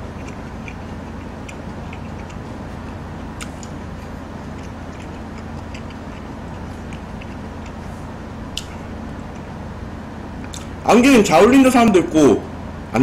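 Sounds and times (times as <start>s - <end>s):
wet mouth chewing clicks: 0.0s - 7.9s, 8.5s - 9.6s, 10.4s - 10.8s
steady low hum: 0.0s - 13.0s.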